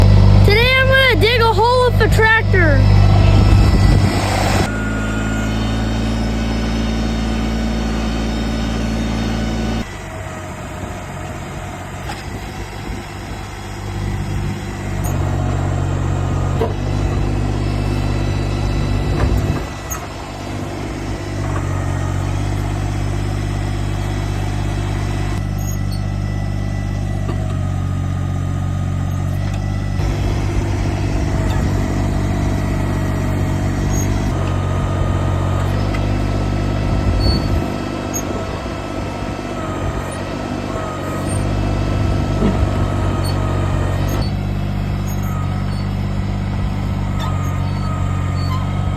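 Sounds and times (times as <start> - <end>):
backhoe digging: 0.0 - 48.9
tractor diesel engine running: 0.0 - 48.9.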